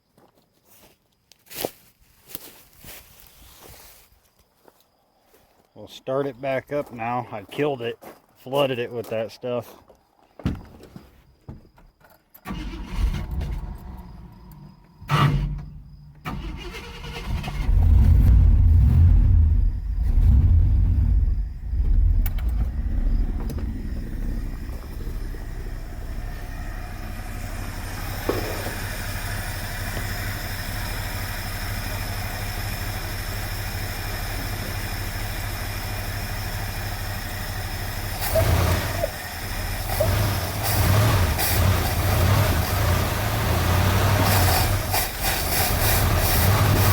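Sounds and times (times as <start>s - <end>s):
car engine cranking and idling: 11.8s - 46.9s.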